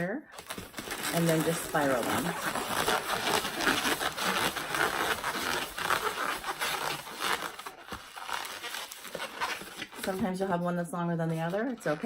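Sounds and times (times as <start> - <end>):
balloons rubbing and squeaking: 0.0 - 12.0.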